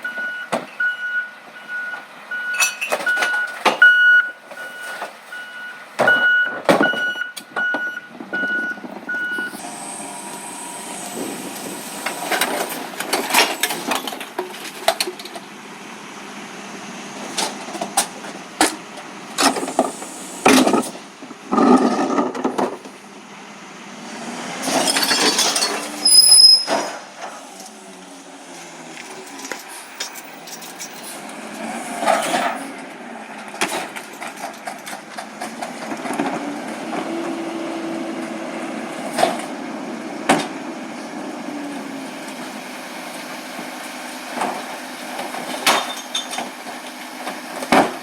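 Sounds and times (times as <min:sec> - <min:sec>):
truck reversing beeper: 0:00.0 - 0:14.0, 0:24.7 - 0:27.0
clanks and clatters of recyclables: 0:02.5 - 0:05.2, 0:11.4 - 0:15.5, 0:17.3 - 0:23.0, 0:24.6 - 0:27.9, 0:28.9 - 0:37.5, 0:38.2 - 0:39.6, 0:43.6 - 0:48.0
hiss burst: 0:19.4 - 0:20.6.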